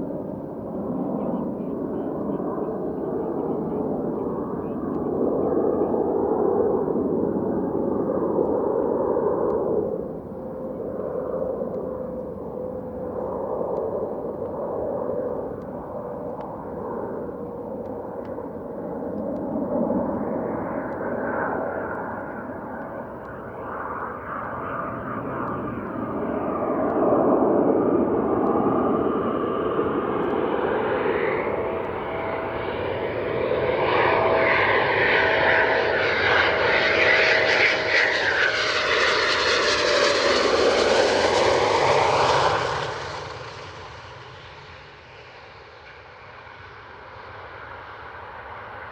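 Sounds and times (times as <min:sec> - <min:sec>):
jet engines whining: 0:00.0 - 0:48.9.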